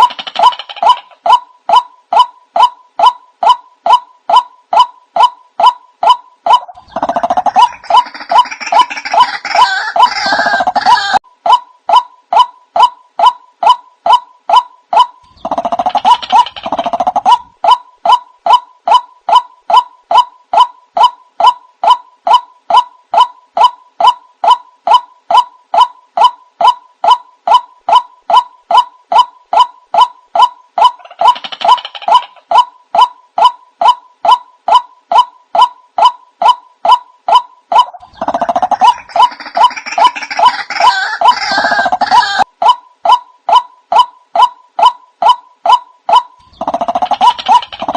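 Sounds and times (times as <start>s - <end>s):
harsh bird calls: 0.0s - 11.2s, 44.8s - 47.9s.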